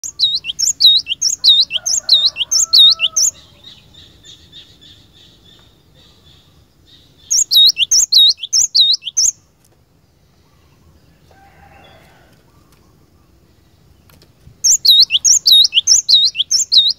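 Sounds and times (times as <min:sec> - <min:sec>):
bird trill: 0:00.0 - 0:09.5, 0:14.6 - 0:16.9
bird singing sharp high notes: 0:14.7 - 0:16.9.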